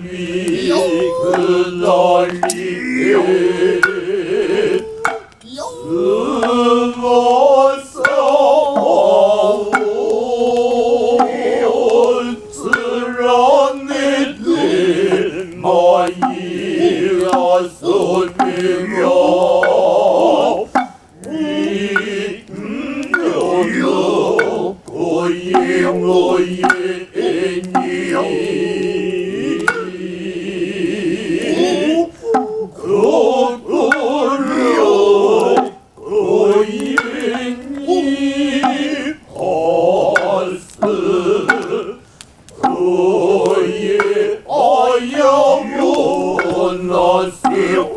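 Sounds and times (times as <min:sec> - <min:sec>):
men chanting in sustained tones: 0:00.0 - 0:47.9
sharp drum strikes: 0:00.5 - 0:04.2, 0:09.5 - 0:10.1, 0:14.5 - 0:19.9, 0:25.5 - 0:26.9, 0:27.6 - 0:28.9, 0:40.2 - 0:41.9, 0:42.6 - 0:44.4, 0:45.7 - 0:47.9.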